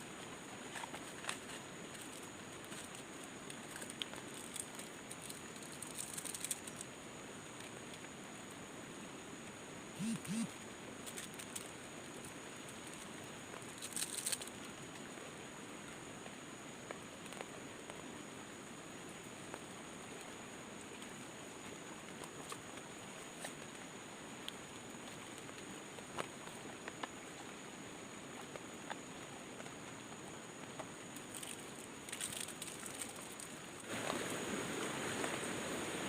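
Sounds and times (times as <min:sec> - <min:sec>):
rustling: 0:00.0 - 0:06.8, 0:13.8 - 0:14.5, 0:31.2 - 0:34.4
background hiss: 0:00.0 - 0:36.0
high-pitched hum: 0:10.0 - 0:10.5
short low calls: 0:10.0 - 0:10.5.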